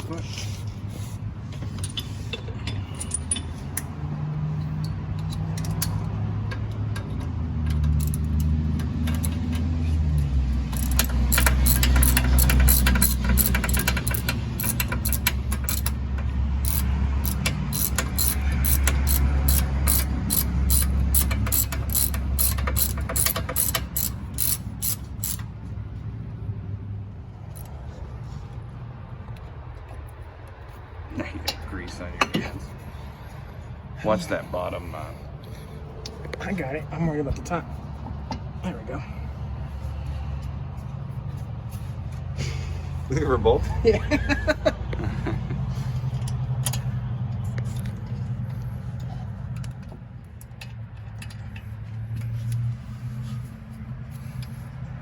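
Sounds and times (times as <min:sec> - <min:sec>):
ratchet wrench clicking: 0:04.6 - 0:25.6, 0:27.5 - 0:27.8, 0:46.1 - 0:52.8.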